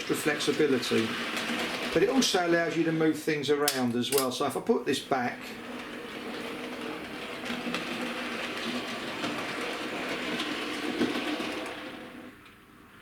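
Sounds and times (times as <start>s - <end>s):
model train motor whirring: 0.0s - 2.2s
wheels clicking on track: 0.0s - 2.9s, 3.6s - 12.3s.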